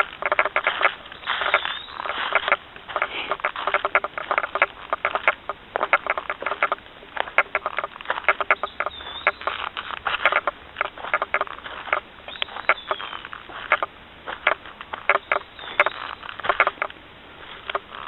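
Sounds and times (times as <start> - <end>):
bird chirp: 0.0 - 2.6, 7.4 - 16.9
footsteps on a trail: 0.0 - 18.0.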